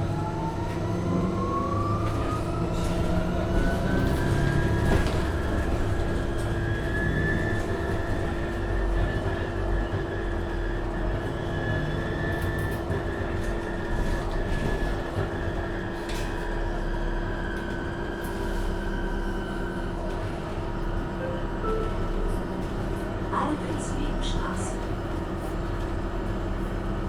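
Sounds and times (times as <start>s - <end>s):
bus drive and road noise: 0.0s - 27.0s
constant hum: 21.2s - 26.7s.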